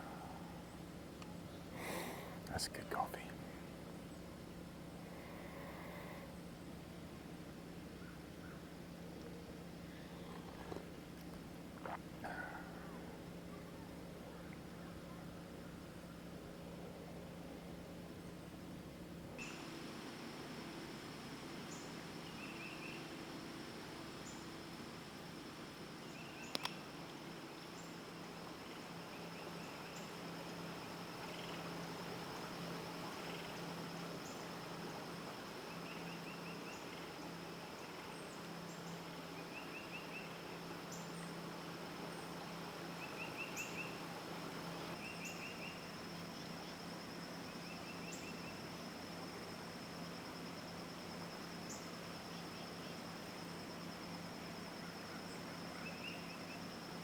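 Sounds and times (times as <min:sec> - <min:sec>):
faint low hum: 0:00.0 - 0:57.0
insects droning and chirping: 0:00.0 - 0:57.0
sharp click: 0:26.5 - 0:26.8.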